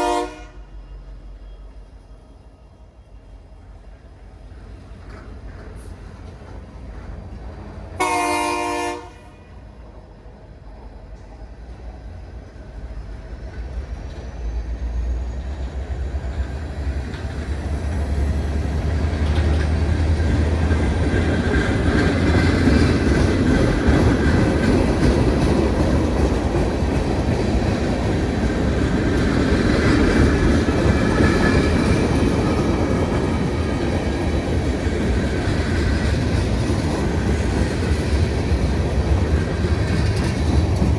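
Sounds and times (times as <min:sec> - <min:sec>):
train horn blast: 0:00.0 - 0:00.9, 0:08.0 - 0:09.6
train rumble and wheel clatter: 0:00.0 - 0:40.9.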